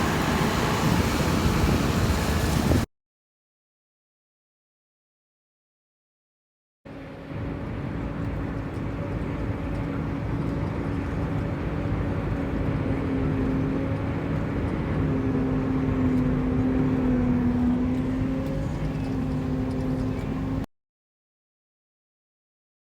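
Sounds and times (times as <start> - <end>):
rushing noise: 0.0 - 2.9
harvesting machinery droning hum: 6.9 - 20.7.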